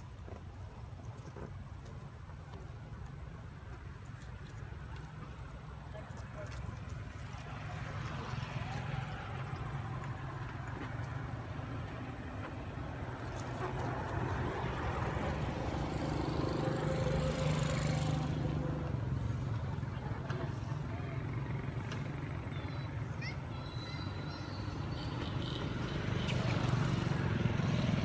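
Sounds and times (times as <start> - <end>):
vehicle engine hum: 0.0 - 28.0.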